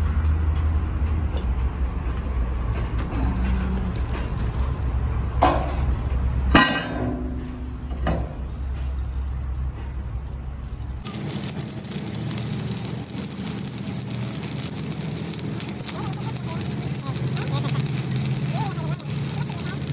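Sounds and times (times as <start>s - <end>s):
low steady drone: 1.7s - 6.1s
crackling hiss: 11.0s - 19.9s
steel parts clinking: 11.0s - 19.9s.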